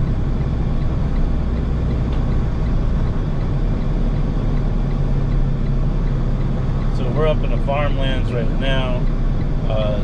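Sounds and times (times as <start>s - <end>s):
diesel truck engine droning: 0.0s - 10.0s.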